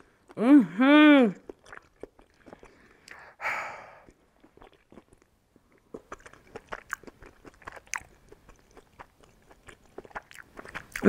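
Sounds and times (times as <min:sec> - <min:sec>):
person chewing food: 0:00.0 - 0:00.4, 0:01.4 - 0:11.0.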